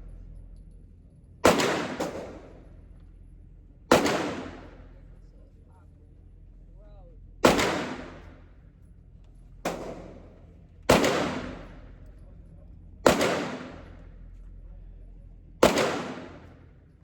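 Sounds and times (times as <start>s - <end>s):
pistol shots echoing: 1.4s - 2.9s, 3.9s - 5.0s, 7.4s - 8.4s, 9.7s - 11.9s, 13.0s - 14.2s, 15.6s - 16.7s.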